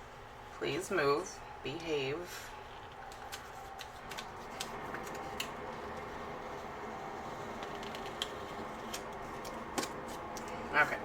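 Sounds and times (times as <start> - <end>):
low room hum: 0.0 - 11.0
stickers peeling off paper: 2.8 - 10.6.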